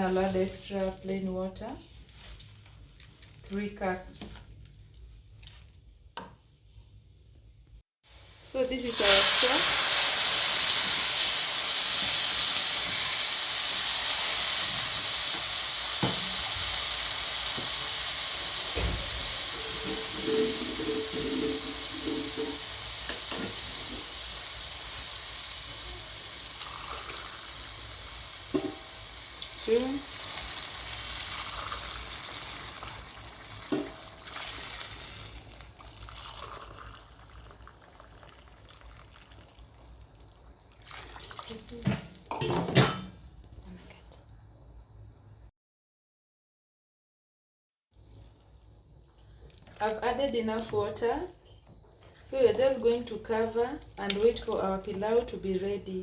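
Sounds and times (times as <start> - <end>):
loud hissing and sizzling: 8.1 - 33.0
utensils knocking on pot: 19.6 - 23.6, 28.5 - 28.9
liquid pouring into pot: 26.4 - 28.7, 30.3 - 41.7.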